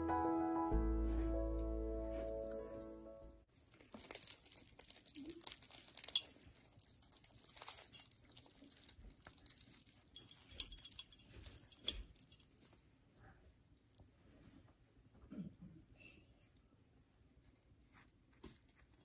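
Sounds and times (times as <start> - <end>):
pastry crackling and crumbling: 3.4 - 14.2, 17.4 - 19.0.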